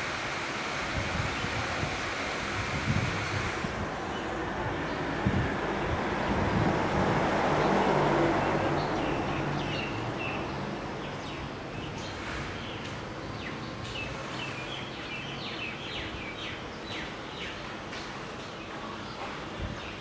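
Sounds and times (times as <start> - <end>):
wind rushing over microphone: 0.7 - 12.6, 19.5 - 20.0
small birds chirping: 8.4 - 20.0.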